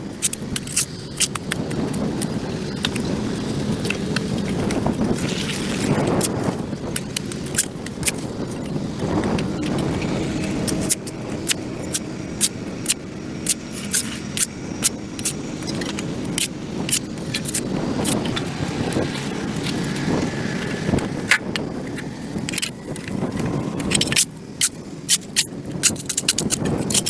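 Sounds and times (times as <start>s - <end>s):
steady low rumble: 0.0s - 27.0s
metal tool scraping concrete: 3.8s - 19.8s, 23.8s - 27.0s.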